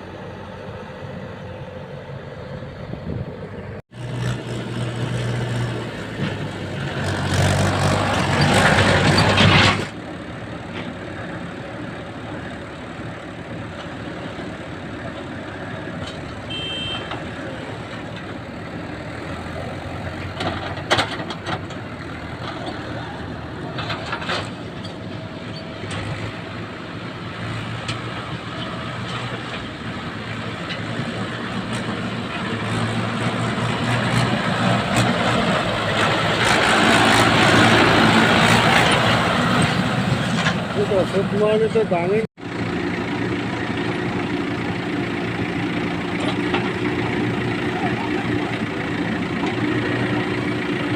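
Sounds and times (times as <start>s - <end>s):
diesel engine humming: 0.0s - 50.9s.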